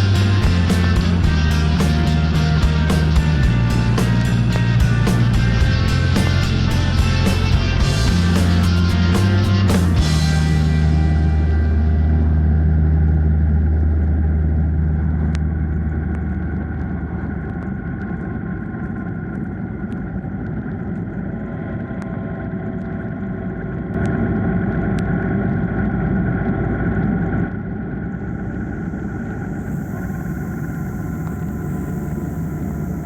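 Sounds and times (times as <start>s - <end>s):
music: 0.0s - 13.8s
motorcycle engine running: 0.0s - 18.2s.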